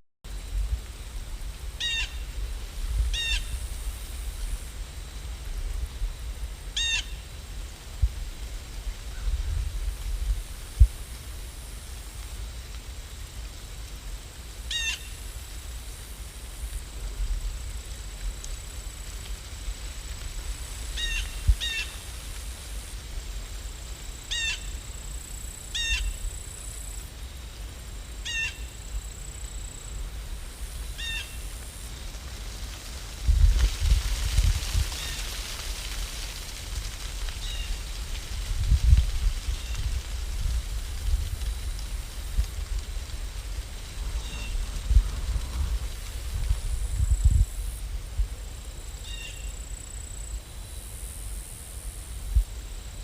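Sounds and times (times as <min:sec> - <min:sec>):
bird calling: 0:01.8 - 0:02.2.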